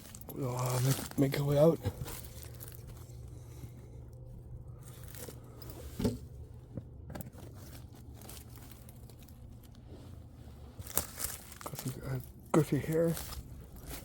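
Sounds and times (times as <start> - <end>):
footsteps crunching dry leaves: 0.0 - 3.3, 4.8 - 5.6, 7.5 - 14.0.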